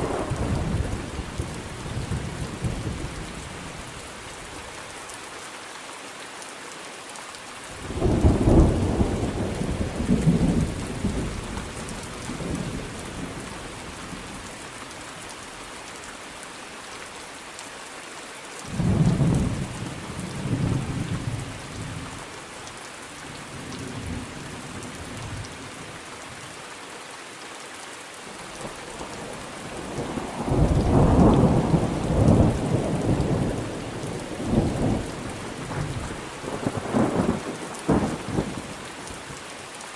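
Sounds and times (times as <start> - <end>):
thunder rumbling: 0.0 - 3.6, 7.9 - 13.5, 29.8 - 38.6
steady rain: 0.0 - 39.9.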